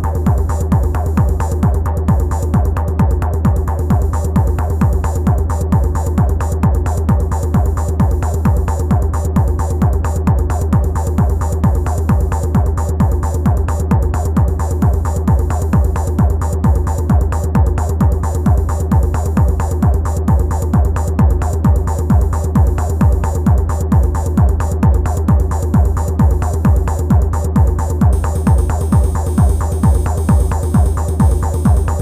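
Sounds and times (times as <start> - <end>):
repeating kick drum: 0.0 - 32.0
low bass drone: 28.1 - 32.0.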